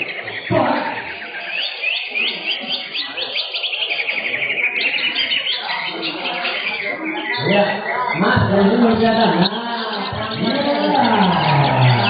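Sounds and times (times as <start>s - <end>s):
birds chattering: 0.0s - 12.0s
songbird whistling notes: 1.1s - 7.5s.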